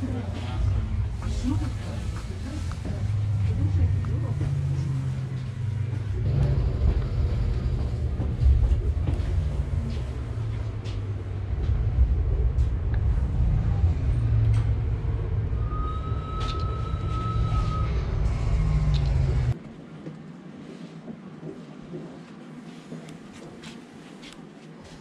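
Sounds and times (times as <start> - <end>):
moving train rumble: 0.0 - 19.6.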